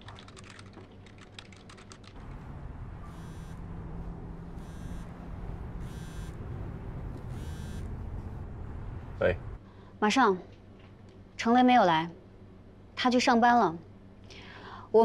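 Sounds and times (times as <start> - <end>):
computer keyboard typing: 0.0 - 2.2
mobile phone ringing: 4.6 - 5.2, 5.8 - 6.4, 7.3 - 7.9.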